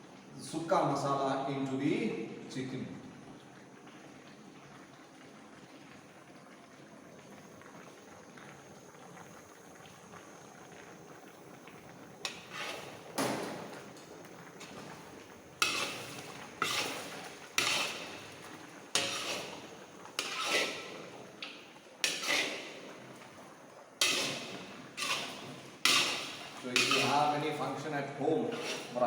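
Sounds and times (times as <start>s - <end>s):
metal ladle scraping a pot: 12.2s - 13.9s, 14.6s - 23.4s, 24.0s - 29.0s.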